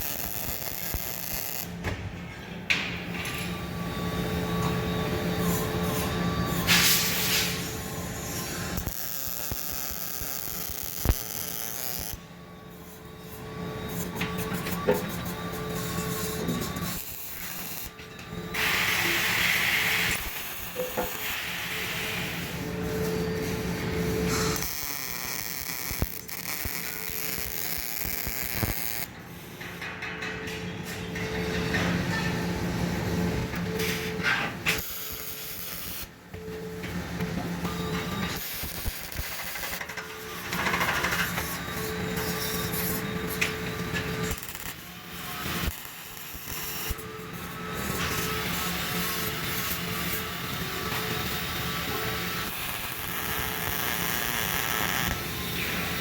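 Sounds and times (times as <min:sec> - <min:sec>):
welding arc crackling hiss: 0:00.0 - 0:01.8, 0:05.4 - 0:12.2, 0:13.3 - 0:29.5, 0:34.8 - 0:36.1, 0:37.6 - 0:56.0.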